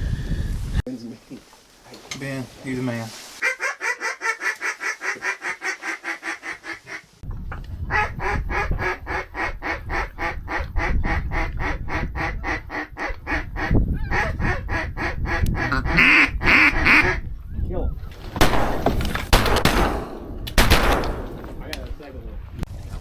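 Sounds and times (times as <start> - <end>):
duck call quacks: 3.4 - 7.0, 7.9 - 17.2.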